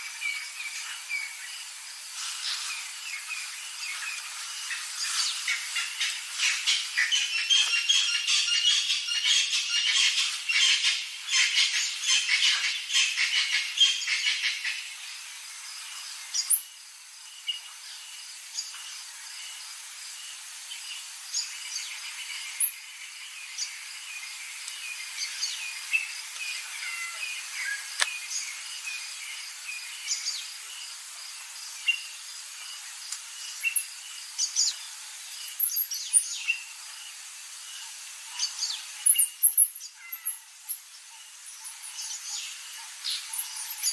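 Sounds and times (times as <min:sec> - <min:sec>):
birds chirping and calling: 0:04.8 - 0:14.9.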